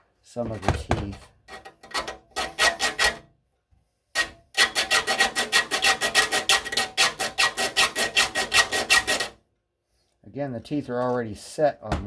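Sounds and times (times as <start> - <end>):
file squealing across saw teeth: 4.6 - 9.4.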